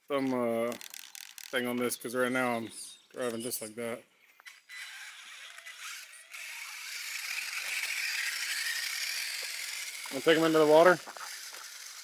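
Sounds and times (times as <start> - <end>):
high-pitched electric motor whirr: 4.5 - 12.0.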